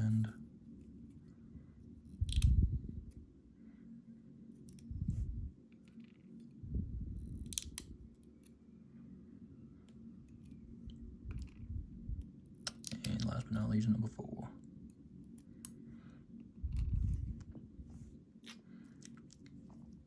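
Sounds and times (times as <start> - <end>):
small metal clicks: 2.1 - 2.6, 7.2 - 8.6, 12.6 - 13.3.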